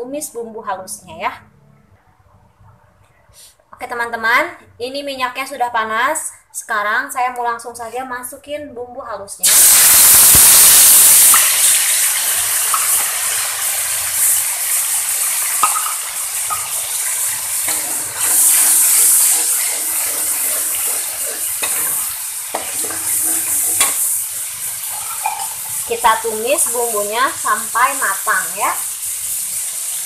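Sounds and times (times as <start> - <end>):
spice paste sizzling in oil: 9.4 - 30.0
metal spoon scraping a wok: 15.6 - 25.9.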